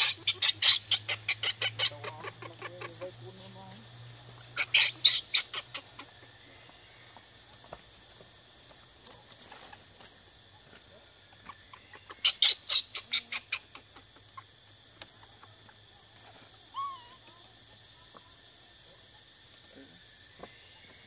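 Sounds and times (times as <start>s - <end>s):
sharp bird calls: 0.0s - 3.0s, 4.6s - 6.2s, 11.4s - 13.8s.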